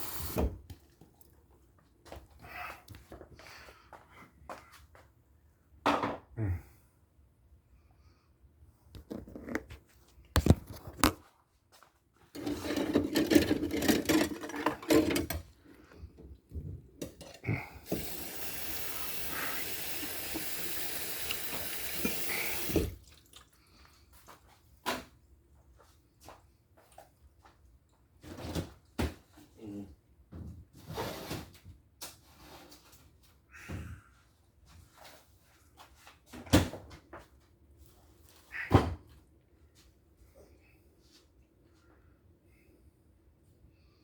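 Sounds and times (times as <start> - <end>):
tap water running: 0.0 - 0.7, 12.4 - 15.4, 17.0 - 23.4
dishes clattering: 12.4 - 15.5.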